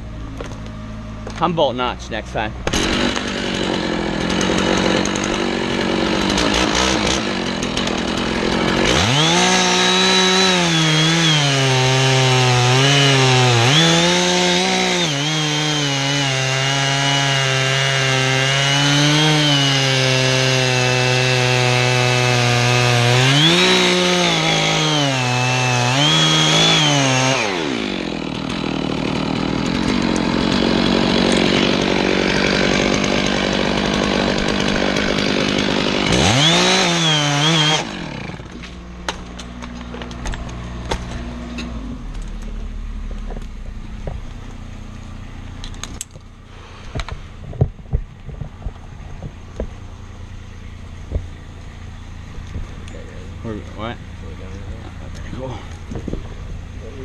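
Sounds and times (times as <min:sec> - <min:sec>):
chainsaw cutting wood: 0:02.6 - 0:57.0.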